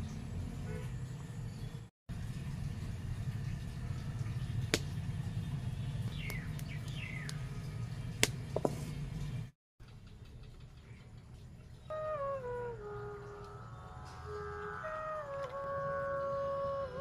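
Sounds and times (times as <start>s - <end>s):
small bird chirping: 5.4s - 7.6s.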